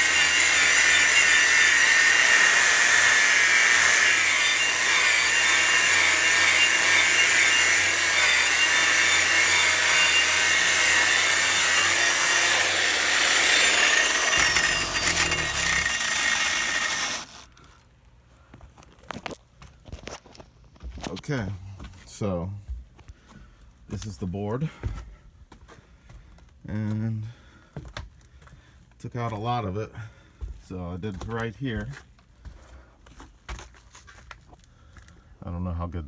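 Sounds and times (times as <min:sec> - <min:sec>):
angle grinder grinding wood: 0:00.0 - 0:17.5.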